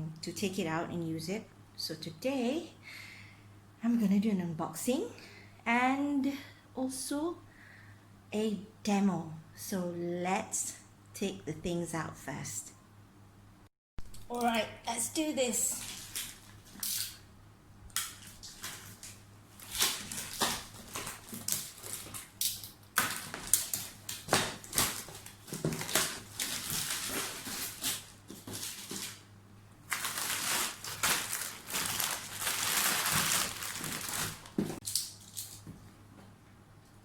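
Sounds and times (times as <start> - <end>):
packaging rustling and crinkling: 15.7 - 17.2, 18.1 - 29.3, 29.9 - 35.5.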